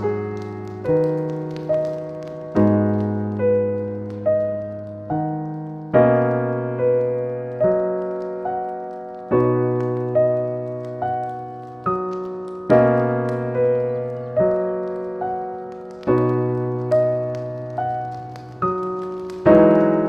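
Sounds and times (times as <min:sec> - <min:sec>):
slow gentle piano: 0:00.0 - 0:20.0.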